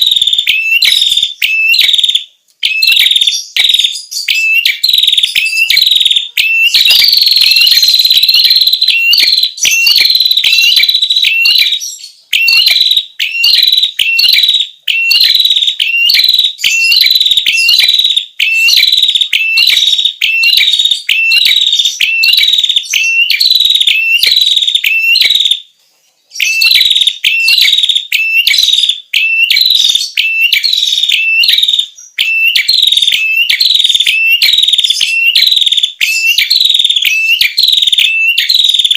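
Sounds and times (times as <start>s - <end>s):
songbird chirping: 0.0s - 38.9s.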